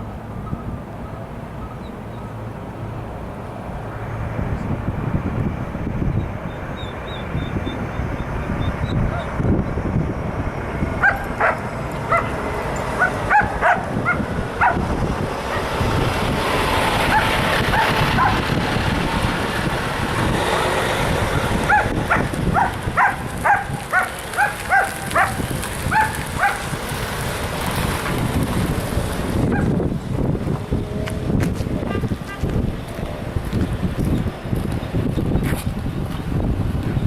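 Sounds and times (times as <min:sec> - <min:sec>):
wind rumbling on microphone: 0:00.0 - 0:37.0
dog yapping: 0:13.0 - 0:14.8, 0:21.7 - 0:26.6.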